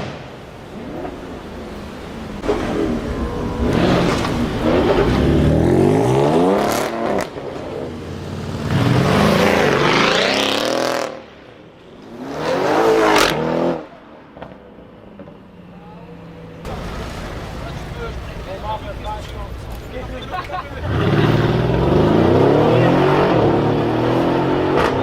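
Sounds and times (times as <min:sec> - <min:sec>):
car engine revving loudly: 0:02.2 - 0:07.5, 0:08.4 - 0:11.2, 0:20.8 - 0:25.0.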